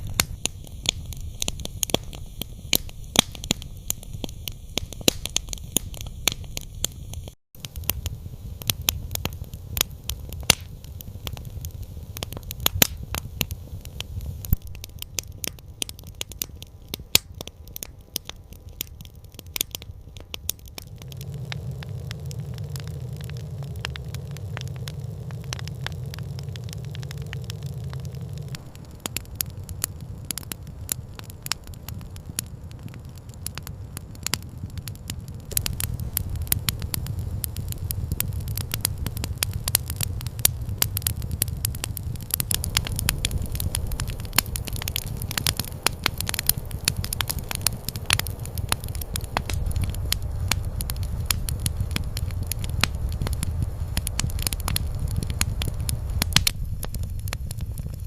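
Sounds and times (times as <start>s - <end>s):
campfire crackling: 0.0s - 58.0s
low rumble: 20.7s - 58.0s.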